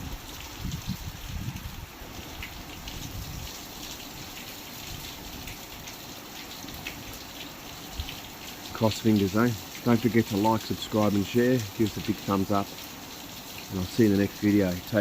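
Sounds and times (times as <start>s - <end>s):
wind buffeting microphone: 0.0s - 3.6s
rain falling steadily: 0.0s - 15.0s.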